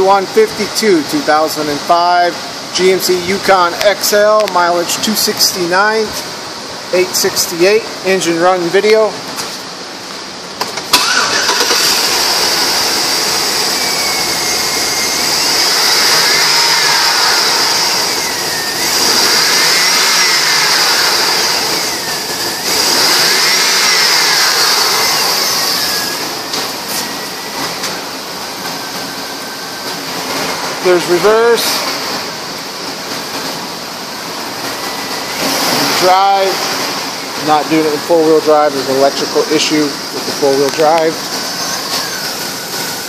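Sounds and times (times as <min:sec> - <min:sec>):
engine starting and revving: 0:10.7 - 0:27.0.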